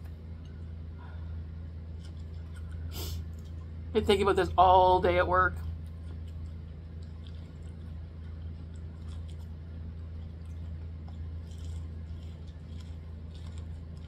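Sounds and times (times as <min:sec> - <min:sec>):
steady low hum: 0:00.0 - 0:14.0
person chewing corn: 0:01.6 - 0:03.8, 0:05.6 - 0:14.0.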